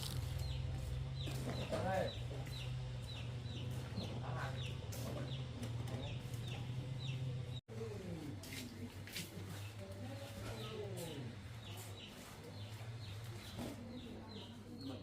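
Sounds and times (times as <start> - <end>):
chicks peeping: 0.4 - 7.3.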